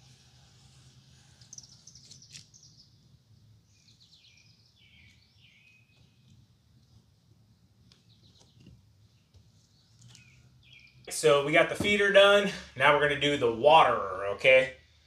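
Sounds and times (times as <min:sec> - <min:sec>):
songbird chirping: 0:01.3 - 0:12.3.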